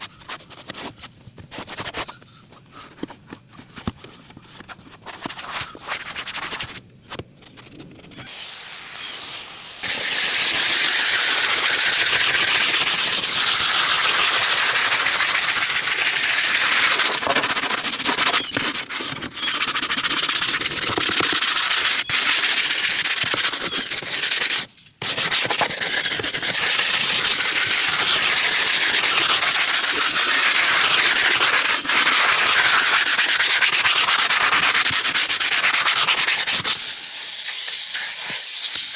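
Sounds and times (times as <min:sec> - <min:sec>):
hissing detailing tool: 0:08.3 - 0:16.5.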